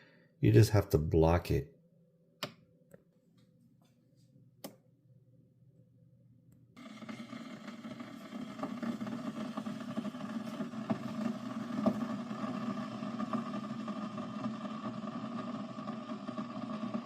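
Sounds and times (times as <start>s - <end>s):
water pump humming: 6.8s - 17.0s.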